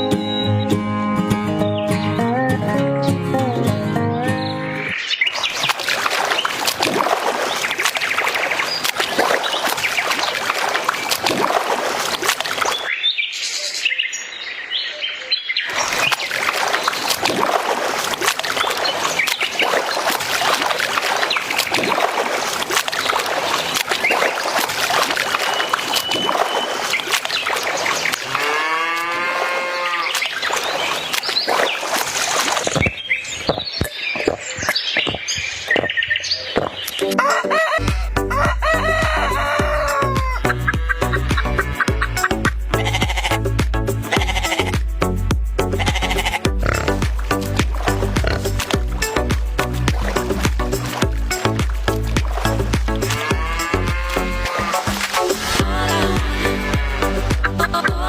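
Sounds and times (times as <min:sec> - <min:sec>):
cattle mooing: 0:28.2 - 0:30.2, 0:53.1 - 0:55.0, 0:56.0 - 0:57.3.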